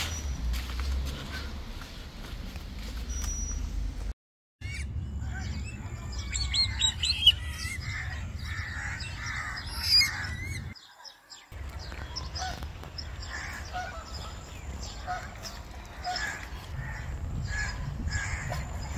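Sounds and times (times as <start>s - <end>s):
birds chirping: 4.6s - 18.9s.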